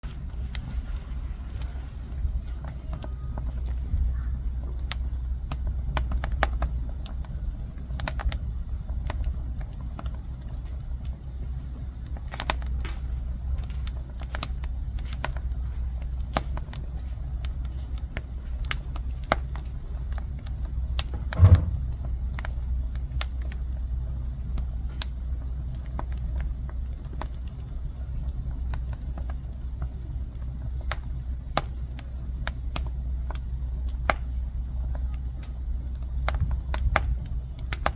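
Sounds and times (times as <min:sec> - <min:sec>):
wood fire crackling: 0:00.0 - 0:37.9
sharp pops from fire: 0:11.8 - 0:37.9
low rumble: 0:21.0 - 0:23.2.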